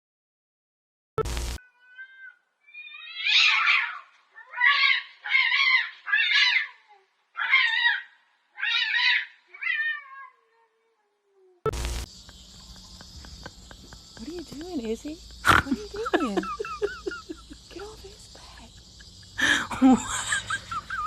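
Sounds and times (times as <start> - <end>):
cat meowing loudly: 1.6 - 4.0.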